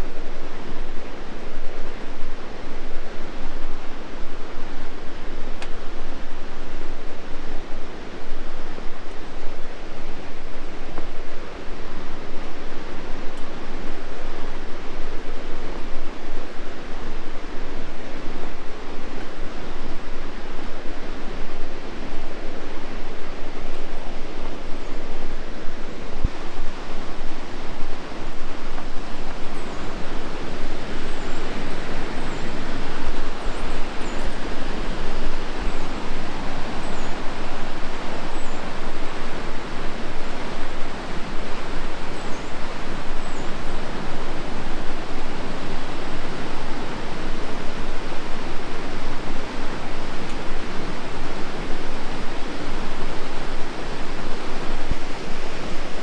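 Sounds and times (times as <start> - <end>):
whitewater rushing: 21.2 - 56.0.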